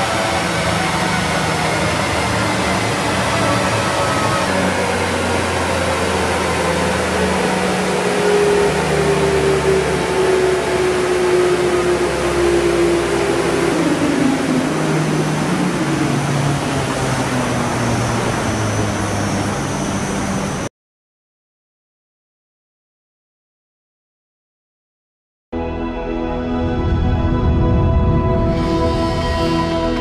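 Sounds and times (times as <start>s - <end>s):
car engine running loud: 0.0s - 20.7s
whine sinking in pitch: 0.0s - 20.7s, 25.6s - 30.0s.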